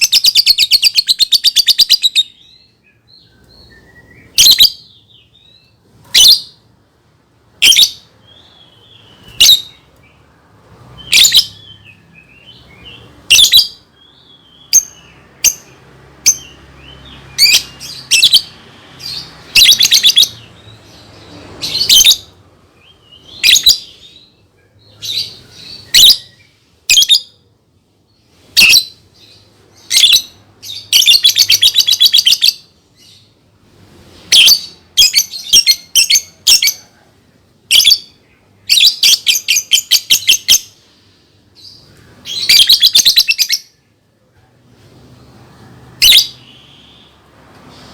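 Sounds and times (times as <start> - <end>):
lovebird shrill chirps: 0.0 - 2.6, 3.6 - 4.9, 7.6 - 9.8, 11.1 - 20.4, 23.2 - 24.1, 25.0 - 27.3, 29.8 - 32.7, 37.7 - 40.8, 41.6 - 43.8, 46.0 - 47.2.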